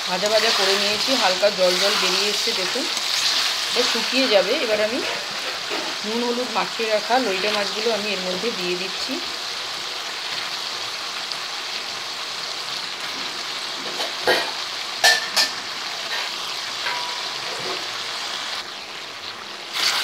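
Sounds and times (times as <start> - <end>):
food frying in oil: 0.0 - 20.0.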